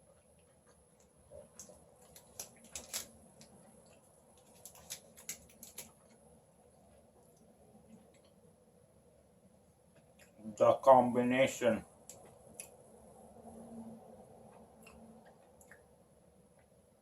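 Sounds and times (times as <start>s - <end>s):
wet mouth clicks chewing candy: 14.8s - 15.9s.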